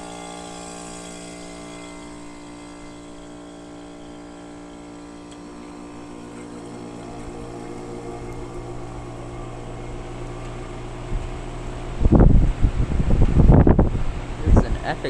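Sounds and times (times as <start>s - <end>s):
compressor hum: 0.0s - 15.0s
air gusts buffeting microphone: 11.1s - 15.0s.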